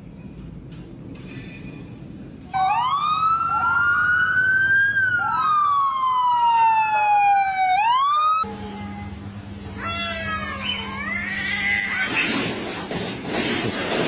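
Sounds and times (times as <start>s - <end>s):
siren wailing: 2.5s - 8.5s.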